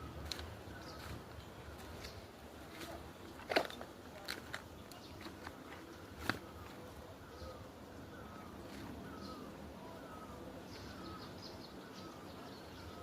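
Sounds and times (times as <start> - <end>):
faint bird chirps: 4.8 - 13.0.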